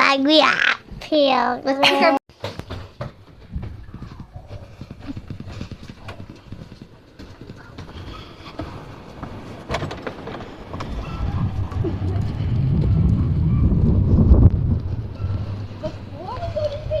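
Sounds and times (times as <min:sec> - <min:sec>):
wind buffeting microphone: 0:08.0 - 0:17.0.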